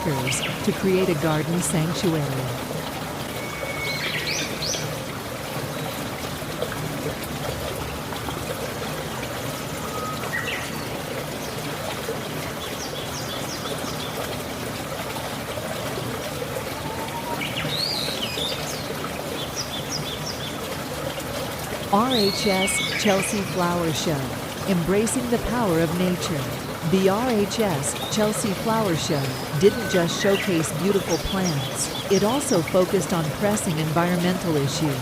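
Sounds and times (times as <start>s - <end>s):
birds chirping: 0.0s - 2.3s, 22.0s - 35.0s
trickling water: 0.0s - 35.0s.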